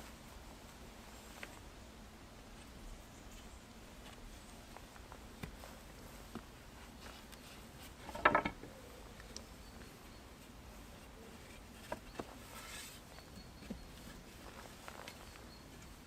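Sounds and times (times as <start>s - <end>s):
scraping and knocking: 8.0s - 8.6s.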